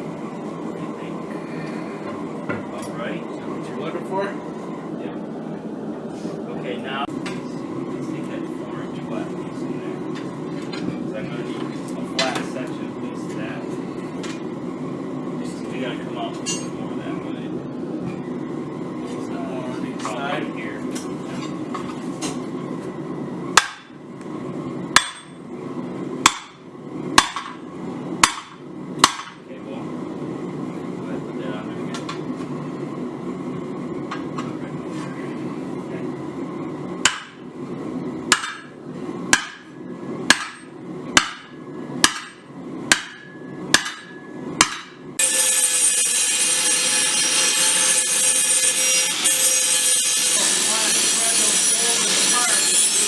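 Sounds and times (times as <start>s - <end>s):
hammer striking steel on anvil: 23.6s - 24.0s, 25.0s - 25.4s, 26.2s - 26.6s, 27.2s - 27.6s, 28.2s - 29.4s, 37.0s - 37.4s, 38.3s - 38.7s, 39.3s - 50.4s.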